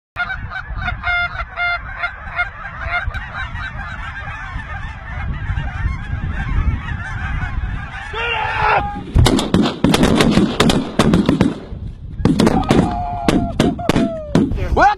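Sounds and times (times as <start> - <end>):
flock of geese honking: 0.2 - 8.9.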